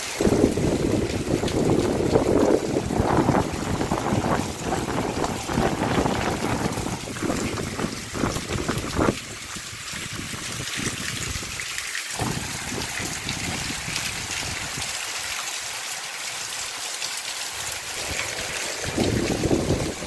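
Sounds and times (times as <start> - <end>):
heavy rain pouring: 0.0 - 20.0
wind buffeting microphone: 0.2 - 11.6, 12.2 - 15.0, 17.9 - 20.0.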